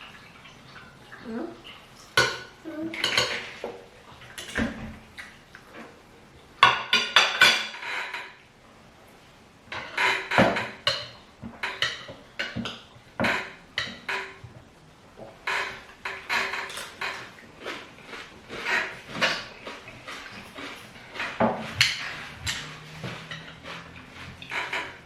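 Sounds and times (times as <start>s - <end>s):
cutlery clinking on plates: 2.2s - 5.0s, 6.6s - 8.4s, 9.7s - 14.4s, 15.5s - 25.0s.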